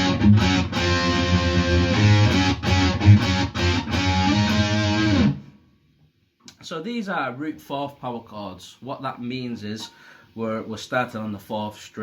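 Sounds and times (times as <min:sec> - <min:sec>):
electric guitar rock riff: 0:00.0 - 0:05.6.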